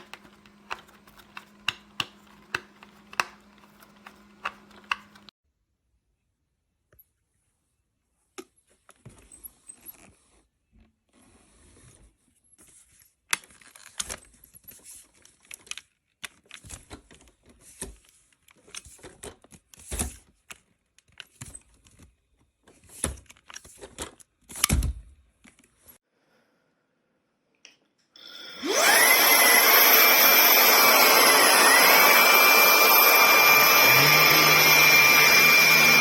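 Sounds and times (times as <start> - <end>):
plastic parts clicking and tapping: 0.0 - 5.3.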